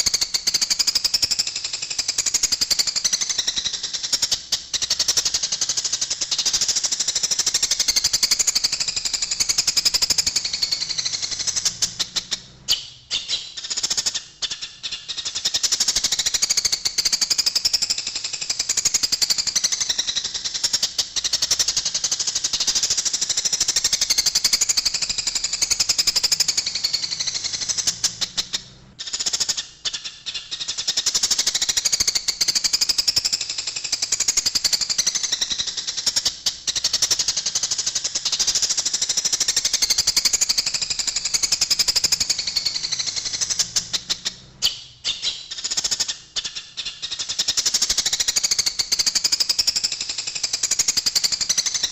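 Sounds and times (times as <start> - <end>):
sparrows chirping: 0.0 - 51.9.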